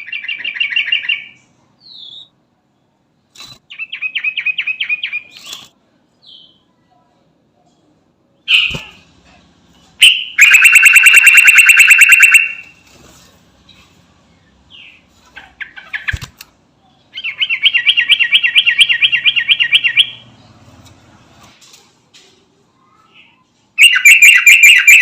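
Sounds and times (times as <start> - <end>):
bird chirps: 0.0 - 2.4, 9.8 - 12.7, 16.8 - 20.6, 22.8 - 25.0.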